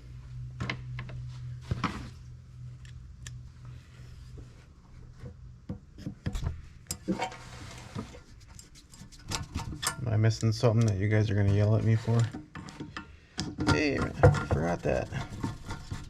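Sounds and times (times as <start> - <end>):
low hum: 0.0 - 5.7
rustling scrape: 7.0 - 9.8, 11.3 - 12.4.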